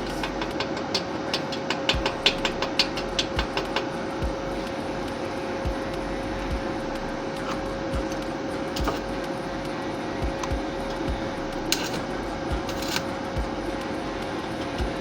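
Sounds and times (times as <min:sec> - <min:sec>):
steady hum: 0:00.0 - 0:15.0
welding arc crackling: 0:00.0 - 0:15.0.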